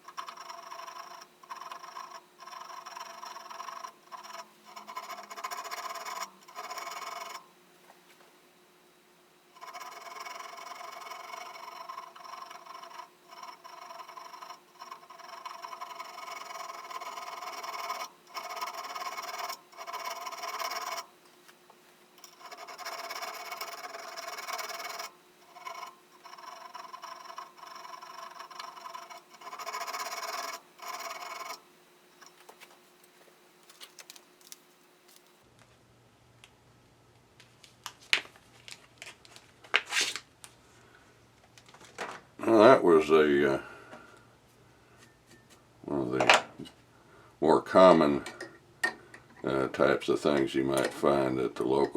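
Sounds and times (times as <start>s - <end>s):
file rasping on steel: 0.0s - 7.5s, 9.5s - 21.1s, 22.2s - 32.4s.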